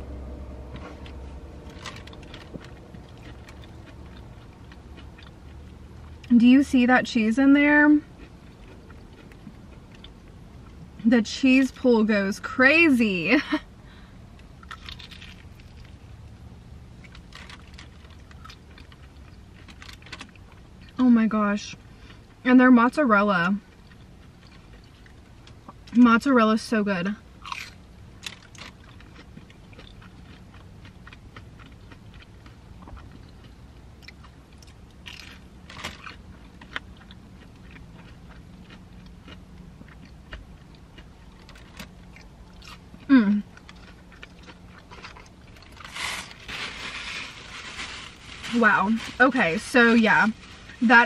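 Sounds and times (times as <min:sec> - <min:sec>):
low steady hum: 0:00.0 - 0:51.0
crunchy chewing: 0:00.7 - 0:06.3, 0:08.0 - 0:10.9, 0:14.3 - 0:21.0, 0:27.4 - 0:49.1.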